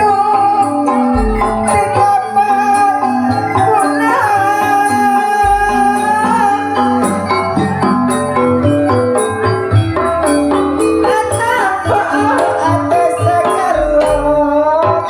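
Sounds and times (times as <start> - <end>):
metallophone notes: 0.0 - 15.0
wavering held melody line: 0.0 - 15.0
deep low thumps: 1.2 - 2.0, 5.4 - 8.9.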